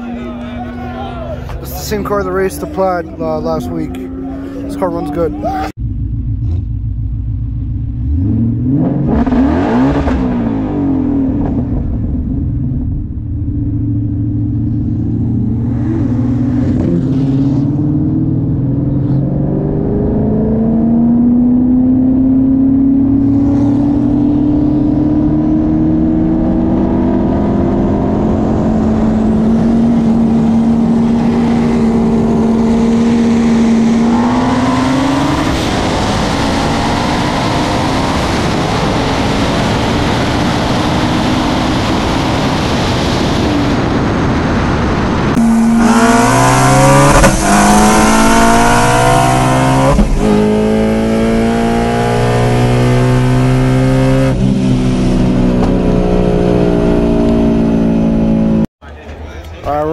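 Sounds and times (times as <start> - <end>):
cars accelerating: 0.0 - 6.8, 7.8 - 12.1, 13.8 - 58.7
engine revving through upshifts: 8.0 - 11.8, 14.1 - 43.8, 45.3 - 58.7
wind rush: 28.3 - 50.7.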